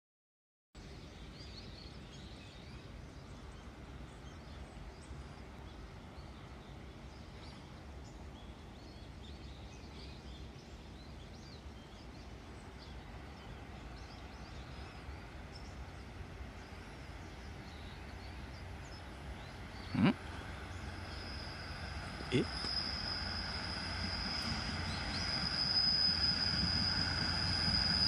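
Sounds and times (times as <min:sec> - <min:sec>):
small birds chirping: 0:01.0 - 0:21.5.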